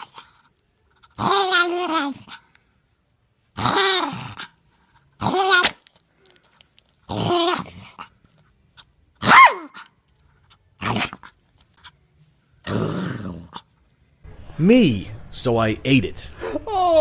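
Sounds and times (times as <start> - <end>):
dog whining and howling: 0.0 - 0.4, 1.0 - 2.4, 3.6 - 4.6, 7.1 - 8.1, 9.2 - 9.9.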